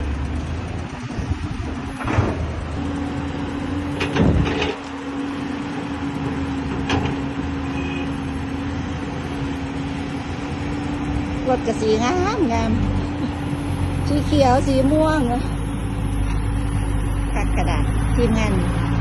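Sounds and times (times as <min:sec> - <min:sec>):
excavator engine drone: 0:00.0 - 0:19.0
held tone: 0:13.4 - 0:18.9.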